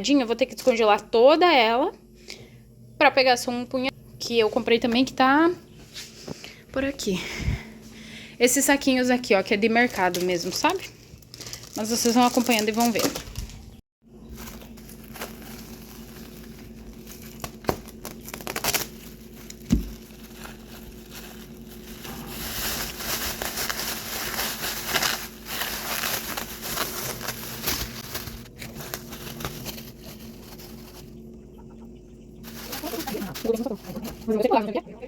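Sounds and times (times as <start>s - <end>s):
plastic bags crinkling: 8.8s - 31.3s, 32.4s - 34.6s.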